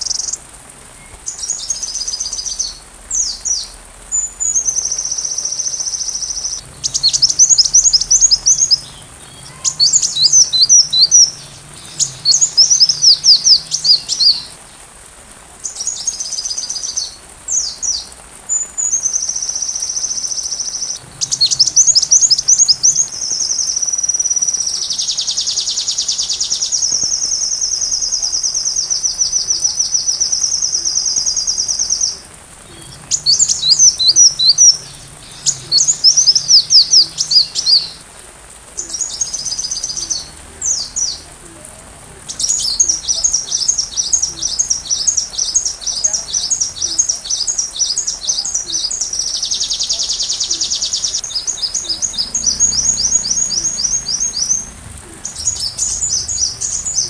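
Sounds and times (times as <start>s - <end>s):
bird song with high trills: 1.0s - 14.8s, 20.6s - 23.9s, 29.2s - 38.0s.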